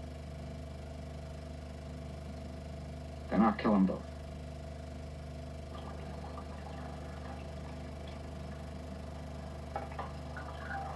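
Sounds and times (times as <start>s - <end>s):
film projector hum: 0.0s - 10.9s
faint soft noises: 9.3s - 10.9s.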